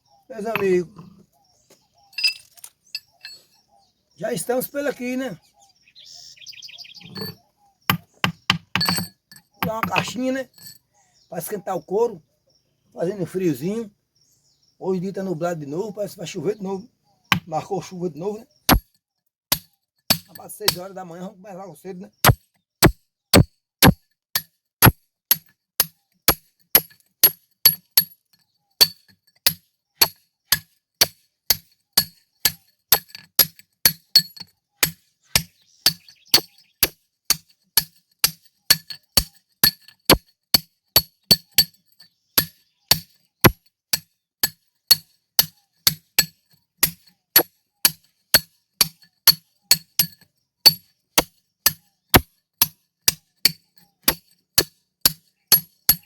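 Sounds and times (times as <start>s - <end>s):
hammer striking steel chisel: 7.1s - 10.2s, 19.5s - 20.8s, 22.2s - 28.1s, 28.8s - 41.8s, 42.4s - 56.0s.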